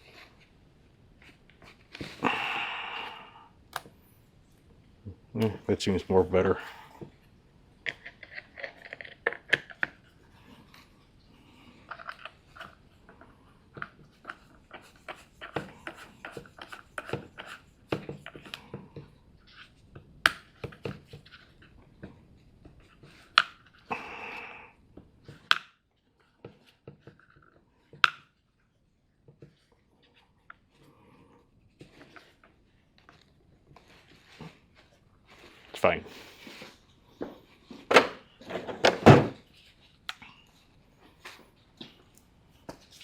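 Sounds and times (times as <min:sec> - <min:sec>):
tools and parts clattering: 0:37.3 - 0:39.4.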